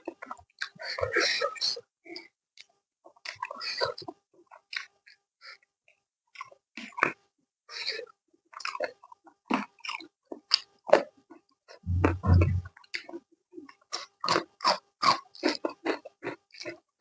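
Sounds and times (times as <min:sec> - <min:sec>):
low thump: 0:11.9 - 0:12.7.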